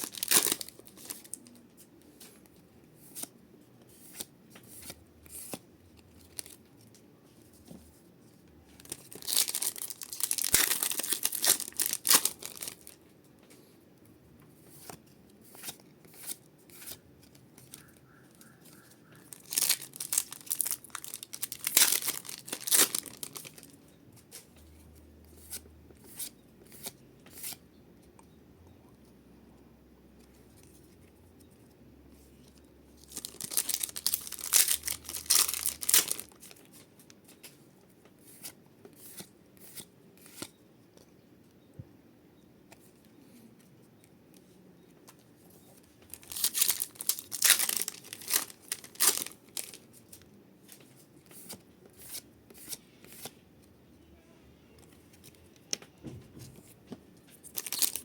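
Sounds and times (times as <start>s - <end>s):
foil wrappers ripping and crinkling: 0.0s - 1.4s, 8.8s - 13.0s, 19.3s - 23.7s, 33.1s - 36.6s, 46.1s - 49.8s, 57.5s - 58.0s.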